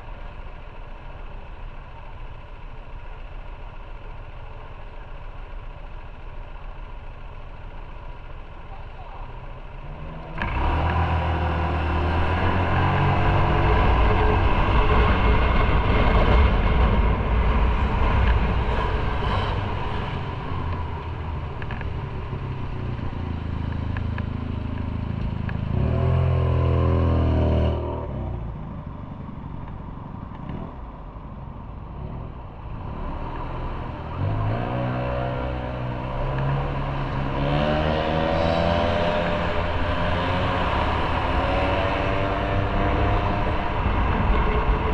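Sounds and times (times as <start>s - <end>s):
motorcycle engine accelerating: 0.0s - 44.9s
road noise: 0.0s - 44.9s
wind noise: 11.9s - 24.4s, 37.6s - 44.9s.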